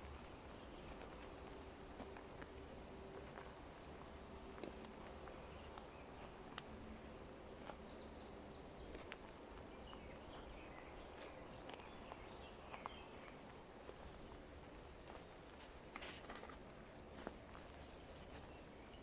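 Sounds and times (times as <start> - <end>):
small bird chirping: 7.0 - 13.4.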